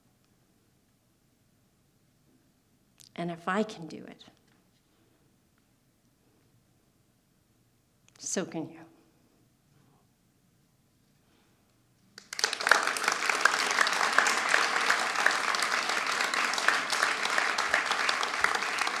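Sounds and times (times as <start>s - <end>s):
audience applauding: 12.2s - 19.0s.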